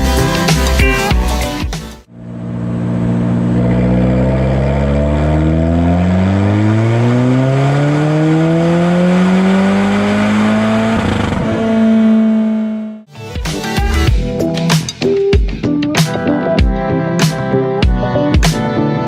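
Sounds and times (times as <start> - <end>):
car engine revving at full throttle: 2.1 - 13.1.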